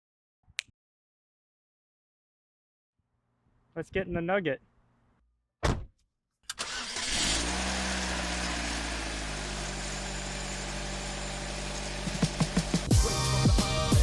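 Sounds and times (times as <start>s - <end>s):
short thud: 5.6s - 6.0s.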